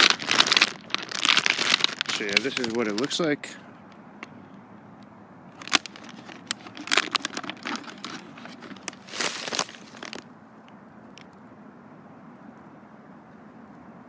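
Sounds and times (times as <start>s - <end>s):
packaging crinkling and tearing: 0.0s - 3.2s, 5.6s - 10.2s.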